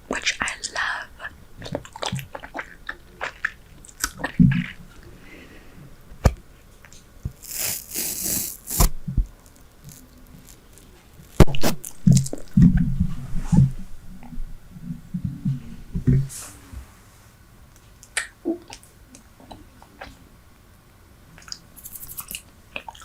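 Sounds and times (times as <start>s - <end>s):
gum chewing mouth smacks: 21.4s - 23.0s.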